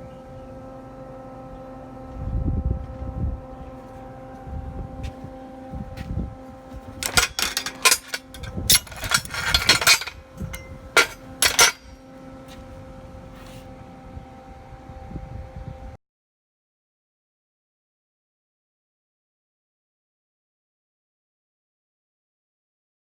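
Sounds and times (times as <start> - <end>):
metal tools clanking: 6.9 - 11.9
metallic scrapes: 7.0 - 11.9.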